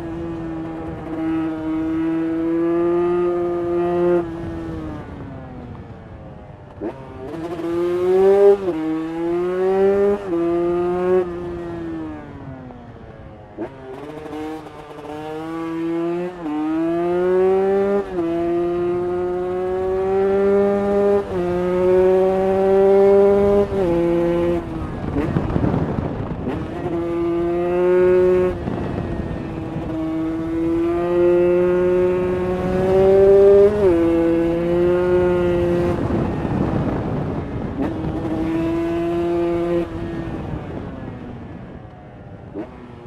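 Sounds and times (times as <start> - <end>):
two-stroke motorcycle accelerating: 0.0 - 43.0.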